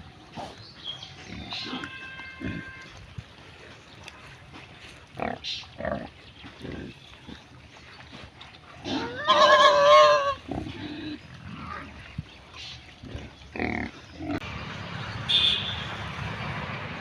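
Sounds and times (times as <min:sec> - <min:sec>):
pigs grunting: 0:00.0 - 0:03.8, 0:05.1 - 0:12.1, 0:12.9 - 0:14.4
pig squealing: 0:01.3 - 0:02.9, 0:08.8 - 0:10.7.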